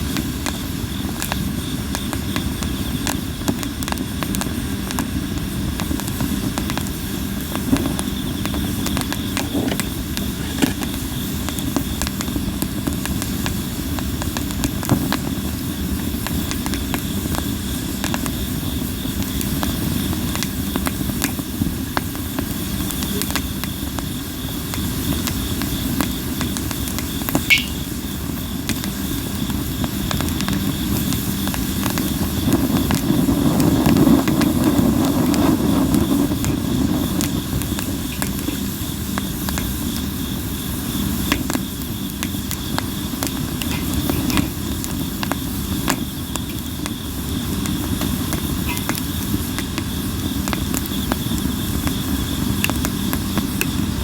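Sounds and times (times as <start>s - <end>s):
fire crackling and popping: 0.0s - 54.0s
faint insect trill: 22.6s - 32.4s, 36.0s - 54.0s.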